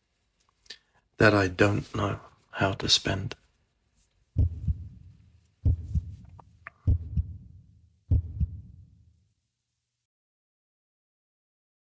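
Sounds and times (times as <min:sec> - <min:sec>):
heartbeat thumps: 0:04.4 - 0:09.0.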